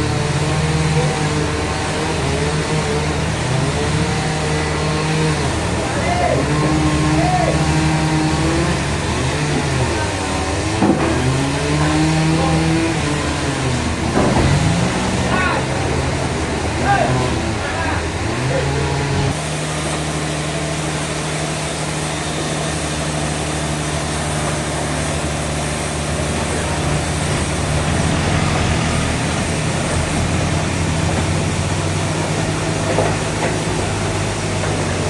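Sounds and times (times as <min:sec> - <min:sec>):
engine low drone: 0:00.0 - 0:35.0
dense rushing noise: 0:19.1 - 0:35.0.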